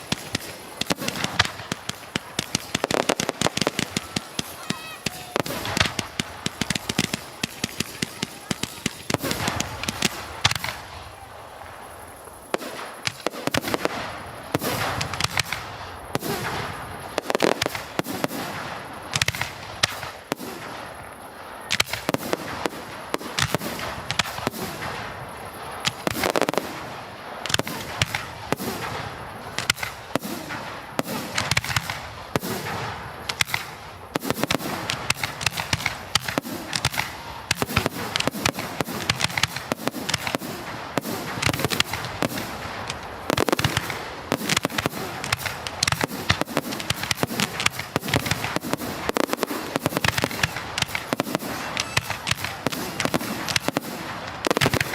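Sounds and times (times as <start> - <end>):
firecrackers banging and crackling: 0.0 - 54.9.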